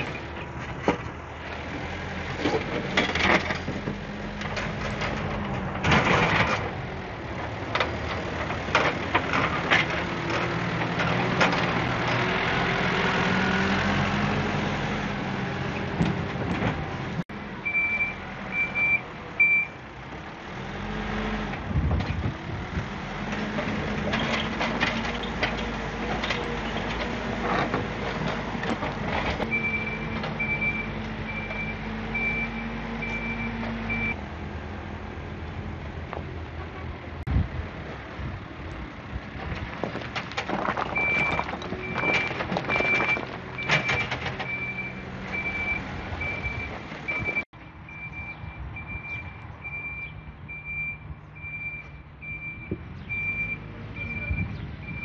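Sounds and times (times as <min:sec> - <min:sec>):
excavator diesel engine: 0:00.0 - 0:55.0
reversing alarm beeping: 0:17.6 - 0:19.8, 0:29.5 - 0:34.2, 0:41.0 - 0:55.0.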